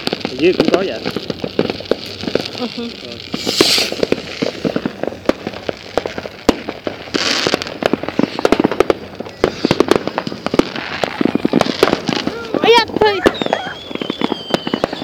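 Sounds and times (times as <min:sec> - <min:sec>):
firework hissing spray: 0:00.0 - 0:15.0
fireworks crackling: 0:00.0 - 0:15.0.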